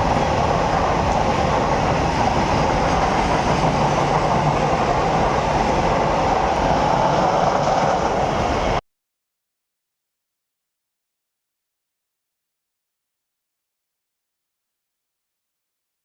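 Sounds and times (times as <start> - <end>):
train wheels rumbling on rails: 0.0 - 8.8.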